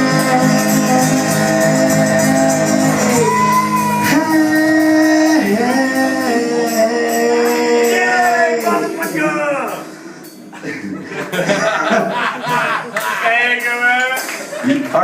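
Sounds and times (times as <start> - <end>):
person singing long notes: 0.0 - 9.2
strummed guitar: 0.0 - 9.4.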